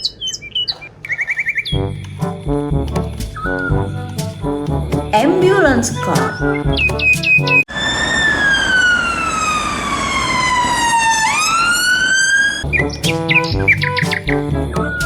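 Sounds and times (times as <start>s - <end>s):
ambulance siren wailing: 7.7s - 12.6s.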